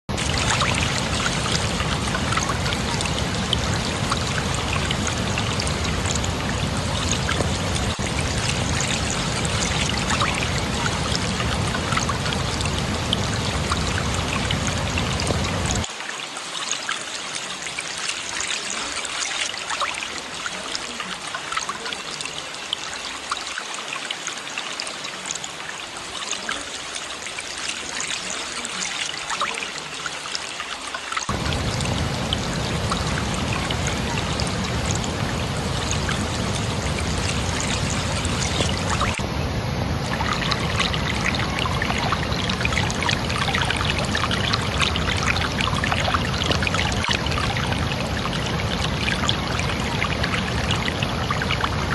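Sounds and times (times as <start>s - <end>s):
deep water rumble: 0.0s - 15.9s, 31.3s - 51.9s
water rushing and splashing: 0.0s - 51.9s.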